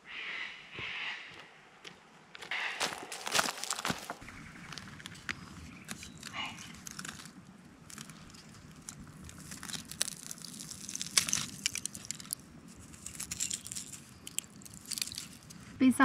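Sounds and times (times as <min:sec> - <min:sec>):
crunching and scraping on sandstone: 0:02.5 - 0:15.8
sharp clicks and crackles: 0:04.7 - 0:15.6.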